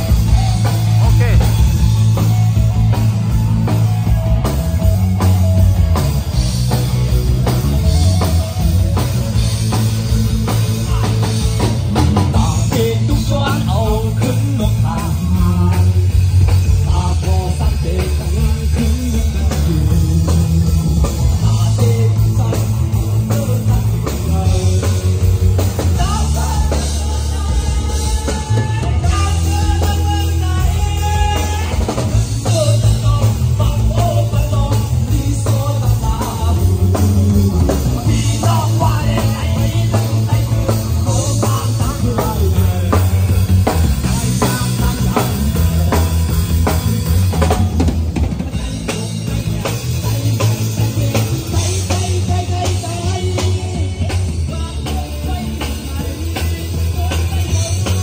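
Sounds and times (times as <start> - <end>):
bass line: 0.0 - 58.0
drum kit: 0.0 - 58.0
guitar: 0.0 - 58.0
person singing: 0.0 - 58.0.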